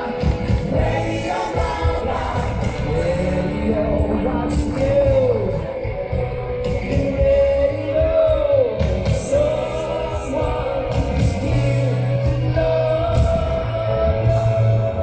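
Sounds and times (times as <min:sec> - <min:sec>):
live rock band playing: 0:00.0 - 0:15.0
person singing long sliding notes: 0:00.0 - 0:15.0.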